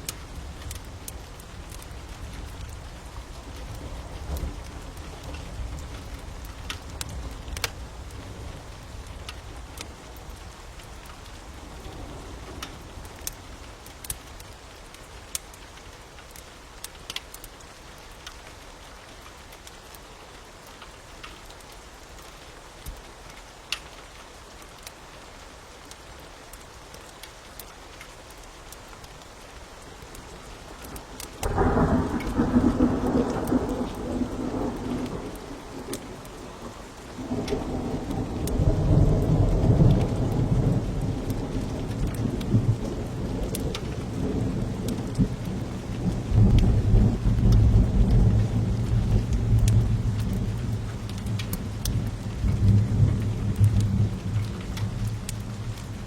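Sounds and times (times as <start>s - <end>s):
steady rain: 0.0s - 56.0s
wood fire crackling: 0.0s - 56.0s
thunder rumbling: 30.7s - 56.0s.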